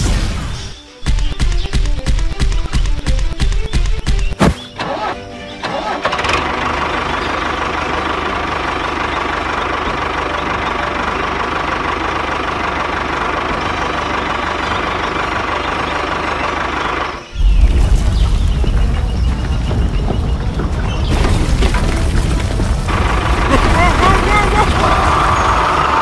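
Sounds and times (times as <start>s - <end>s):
small tractor engine chugging: 5.5s - 26.0s.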